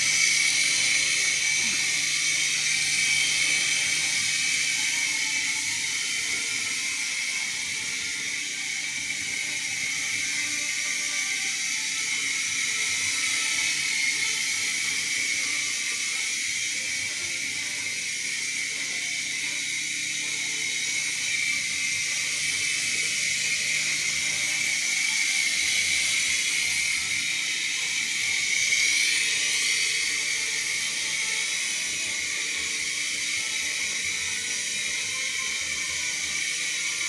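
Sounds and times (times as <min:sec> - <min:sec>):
toy helicopter rotors whirring: 0:00.0 - 0:37.0.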